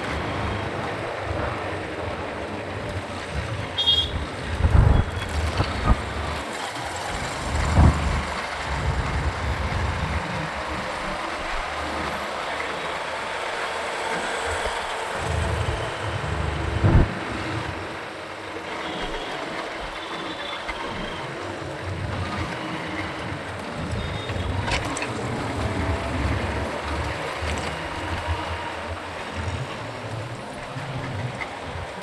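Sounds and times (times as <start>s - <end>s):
wind rumbling on microphone: 0.0s - 18.7s
motorcycle engine: 0.0s - 19.0s
short thumps: 16.8s - 17.2s.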